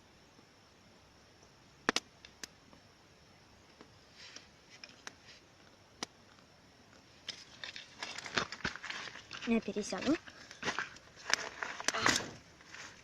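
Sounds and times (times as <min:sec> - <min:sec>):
twigs snapping and popping in fire: 0:01.8 - 0:02.6, 0:04.8 - 0:13.0.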